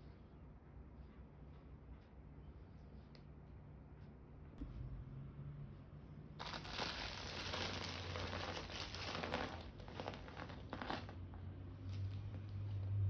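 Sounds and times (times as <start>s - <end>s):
packaging crinkling: 6.4s - 11.2s.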